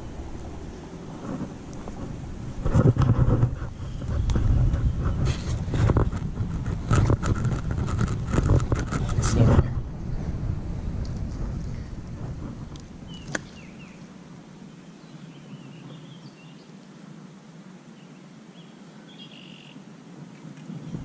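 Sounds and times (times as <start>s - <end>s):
low rumble: 0.0s - 14.0s
small birds chirping: 3.6s - 5.5s, 13.0s - 16.8s, 17.9s - 19.8s
faint hiss: 13.1s - 21.0s.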